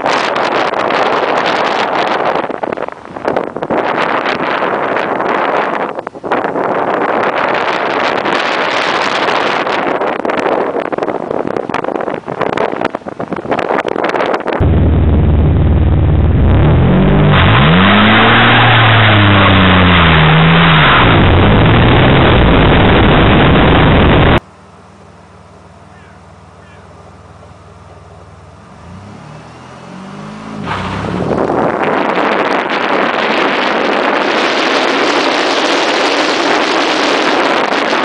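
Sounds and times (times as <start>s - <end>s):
heavy rushing noise: 0.2s - 24.4s
car engine revving: 14.6s - 24.4s, 28.7s - 38.0s.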